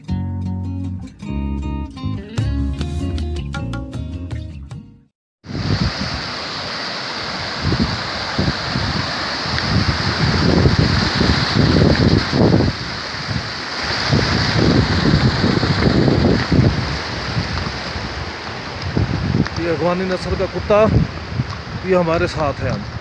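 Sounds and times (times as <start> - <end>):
wind buffeting microphone: 5.4 - 23.0.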